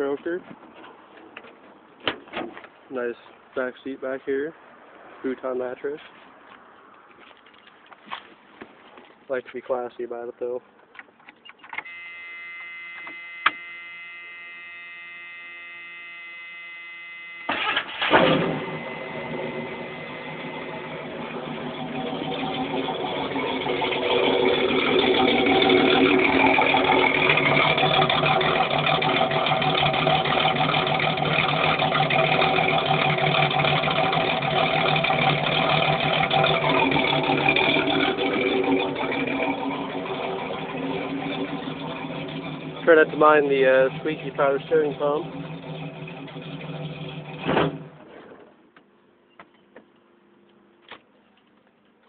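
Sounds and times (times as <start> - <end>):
steady electronic tone: 11.8 - 17.6, 18.5 - 21.1
car engine idling: 11.9 - 48.2
car engine cranking: 16.6 - 48.4.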